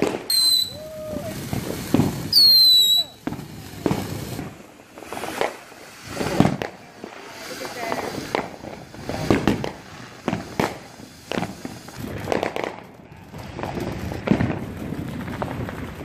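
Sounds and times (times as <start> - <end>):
fireworks popping and banging: 0.0 - 16.0.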